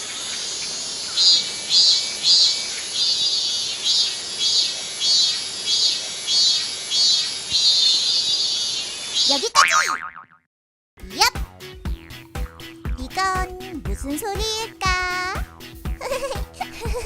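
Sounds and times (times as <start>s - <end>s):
cicadas buzzing: 0.0s - 9.6s.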